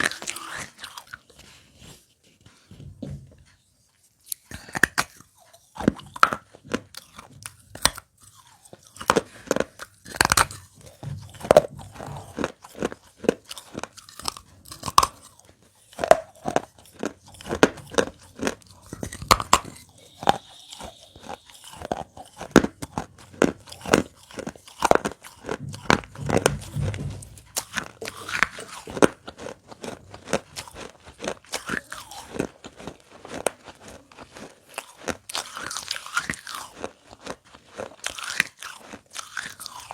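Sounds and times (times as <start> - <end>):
crunching of clay pot pieces: 4.4 - 39.9.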